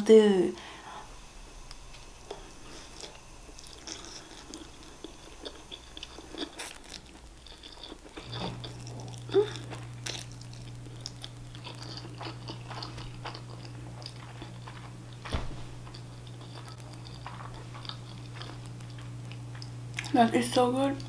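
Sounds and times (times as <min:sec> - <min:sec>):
steady low hum: 0:00.0 - 0:21.0
chewing soft noodles: 0:01.7 - 0:21.0
thump: 0:15.3 - 0:15.7.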